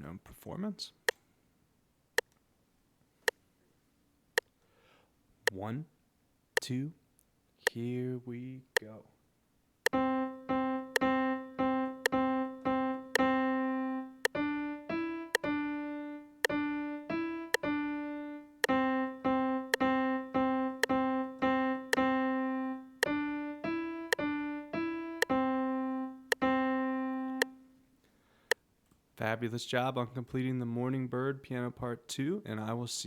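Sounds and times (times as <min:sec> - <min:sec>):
metronome clicks: 0:09.9 - 0:27.6
piano melody: 0:09.9 - 0:27.9.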